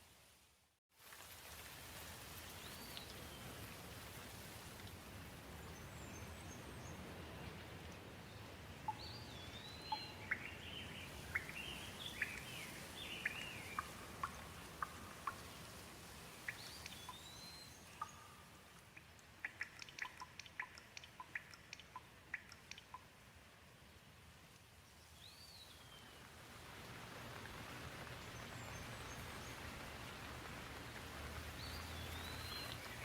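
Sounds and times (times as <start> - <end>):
gentle rain hiss: 0.0 - 33.0
sharp water drips: 1.0 - 5.7, 8.8 - 33.0
bird chirping: 8.9 - 15.4, 16.5 - 23.0, 31.6 - 33.0.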